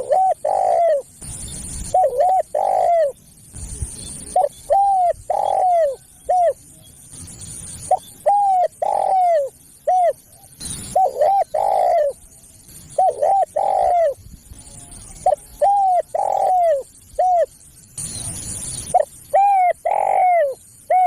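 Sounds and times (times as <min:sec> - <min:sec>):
dove cooing: 0:00.0 - 0:01.1, 0:01.9 - 0:03.2, 0:04.3 - 0:06.6, 0:07.9 - 0:12.2, 0:13.0 - 0:14.2, 0:15.0 - 0:17.5, 0:18.9 - 0:21.0.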